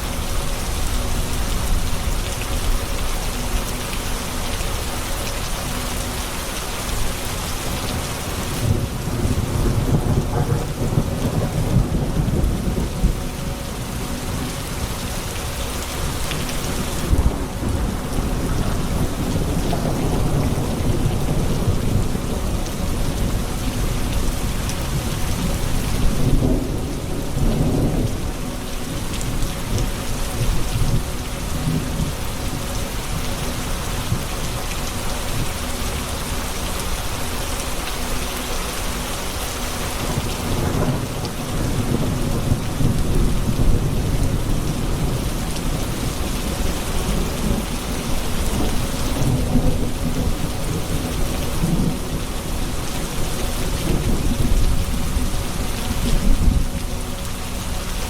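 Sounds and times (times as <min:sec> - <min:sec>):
heavy rain: 0:00.0 - 0:58.0
thunder rumbling: 0:07.0 - 0:33.2, 0:40.0 - 0:57.9.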